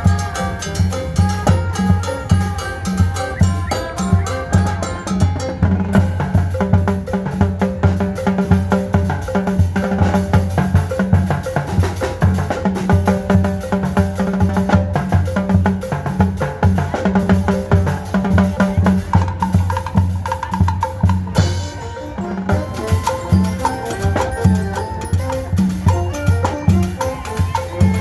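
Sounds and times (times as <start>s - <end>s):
band music with fast drums: 0.0s - 28.0s
held melody note: 0.0s - 28.0s.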